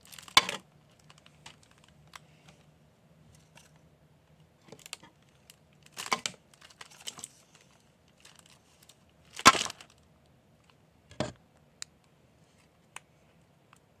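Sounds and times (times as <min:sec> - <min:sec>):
paper crinkling and crunching: 0:00.0 - 0:02.2, 0:04.6 - 0:10.0.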